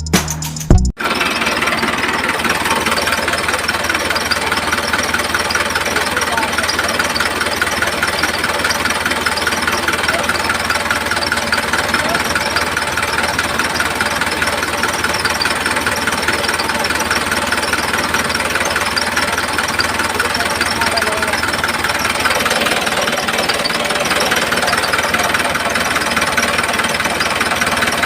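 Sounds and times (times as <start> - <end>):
music: 0.0 - 0.9
motor buzzing rattle: 1.1 - 28.0.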